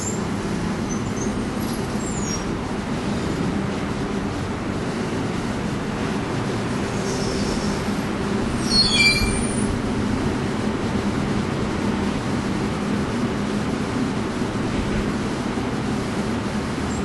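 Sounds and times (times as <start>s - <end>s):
ferry machinery droning: 0.0s - 17.0s
high squeal: 8.5s - 9.8s.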